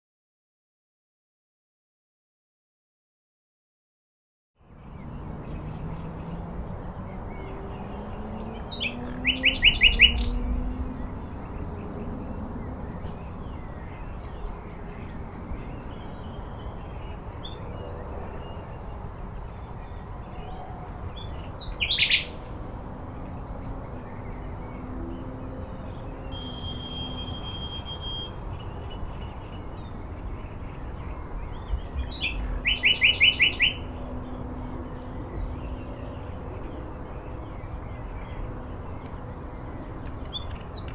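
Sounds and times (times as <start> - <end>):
rapid repeated bird calls: 4.8 - 40.9
faint high bird chirping: 7.0 - 22.8, 23.4 - 34.4
sharp bird call: 32.6 - 33.9.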